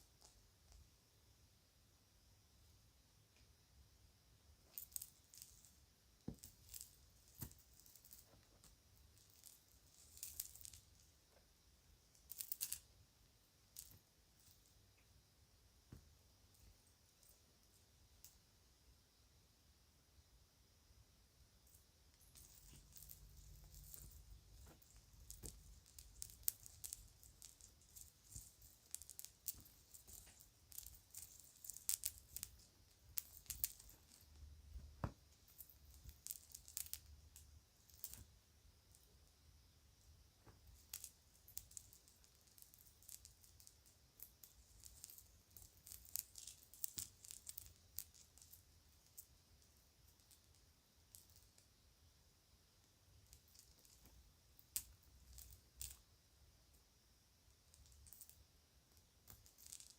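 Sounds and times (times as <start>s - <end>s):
plastic jewelry clicking: 40.7s - 49.3s.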